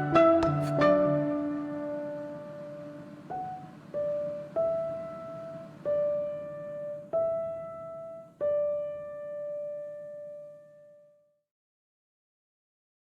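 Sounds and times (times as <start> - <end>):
slow piano melody: 0.0 - 11.2.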